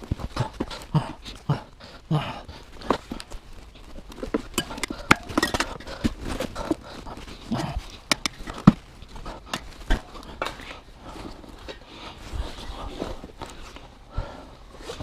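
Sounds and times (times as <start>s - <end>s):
hand tools clicking and knocking: 4.1s - 10.7s.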